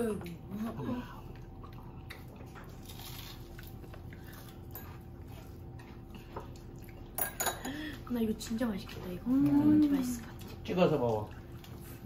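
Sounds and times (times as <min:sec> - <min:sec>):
low steady hum: 0:00.0 - 0:12.0
biting and chewing food: 0:01.2 - 0:07.2.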